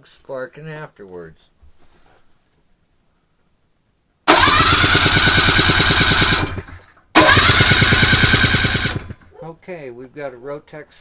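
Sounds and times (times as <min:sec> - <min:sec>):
electric starter whine: 0:04.3 - 0:09.3
engine cranking pulses: 0:04.3 - 0:09.3.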